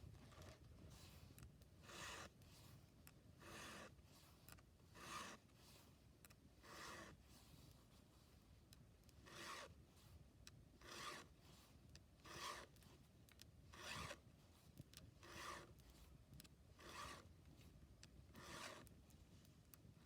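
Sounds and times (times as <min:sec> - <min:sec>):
file rasping on chainsaw chain: 0:01.8 - 0:02.4, 0:03.4 - 0:04.0, 0:05.0 - 0:05.5, 0:06.6 - 0:07.2, 0:09.2 - 0:09.8, 0:10.8 - 0:11.4, 0:12.2 - 0:12.8, 0:13.7 - 0:14.2, 0:15.2 - 0:15.8, 0:16.8 - 0:17.3, 0:18.3 - 0:18.9.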